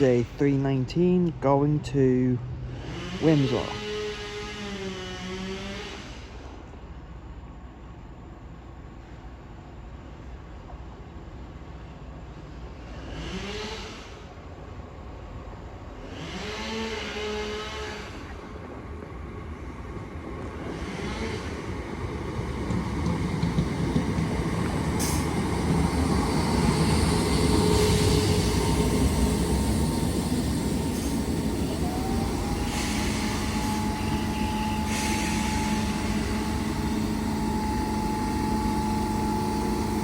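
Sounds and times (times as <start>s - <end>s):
train whine: 0.0s - 40.0s
electric train running: 2.7s - 6.2s, 16.0s - 40.0s.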